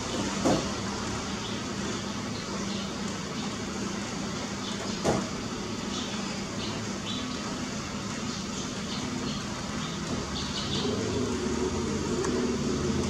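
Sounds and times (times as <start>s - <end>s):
constant low hum: 0.0s - 13.0s
distant traffic: 0.0s - 13.0s
rain hissing: 5.2s - 13.0s.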